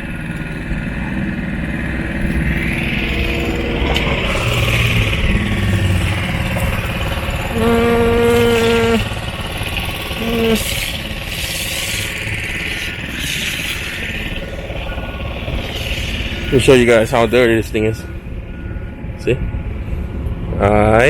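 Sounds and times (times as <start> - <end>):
engine running: 0.0 - 21.0
horn blasts: 2.9 - 9.4, 10.2 - 10.8.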